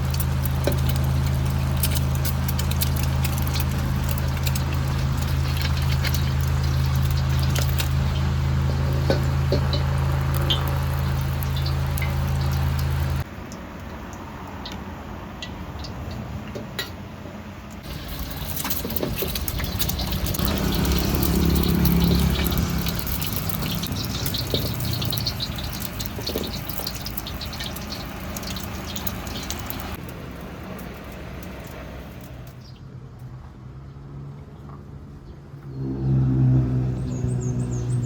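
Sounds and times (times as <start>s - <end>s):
low engine drone: 0.0s - 13.3s, 17.8s - 32.5s, 35.6s - 38.0s
food frying in a wok: 0.0s - 32.8s.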